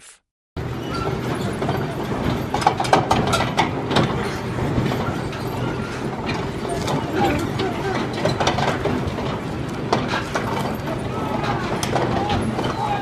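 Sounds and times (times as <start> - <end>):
heavy machinery engine humming: 3.7 - 13.0.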